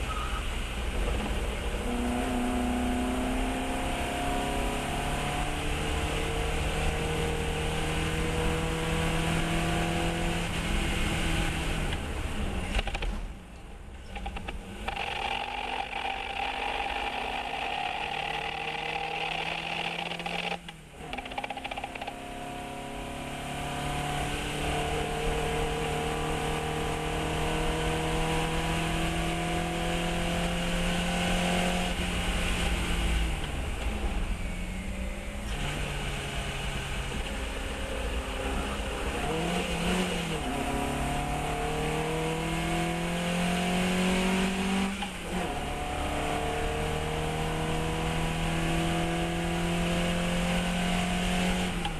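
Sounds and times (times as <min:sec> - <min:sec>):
race car engine revving: 0:14.6 - 0:51.9.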